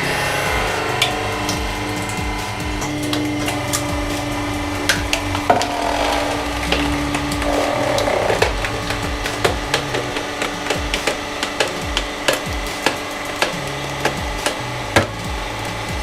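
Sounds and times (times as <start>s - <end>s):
hydraulic press hum: 0.0s - 16.0s.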